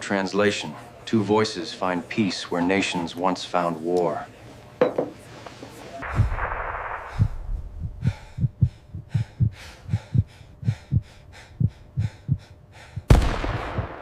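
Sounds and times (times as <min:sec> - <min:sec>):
low muffled thumps: 0:06.0 - 0:12.4.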